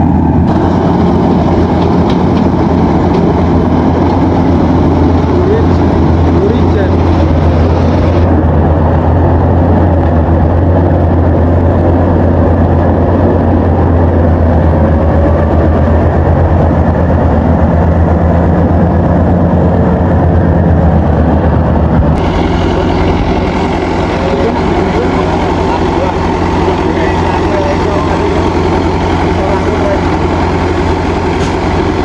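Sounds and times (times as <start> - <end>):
combine harvester engine humming: 0.0 - 32.0.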